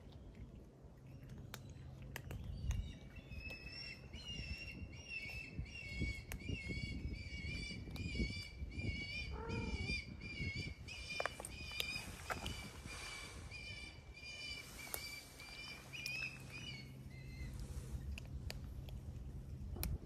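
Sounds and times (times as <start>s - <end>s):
cats crunching dry food: 0.0s - 6.5s, 10.9s - 20.0s
songbird chirping: 0.0s - 18.7s.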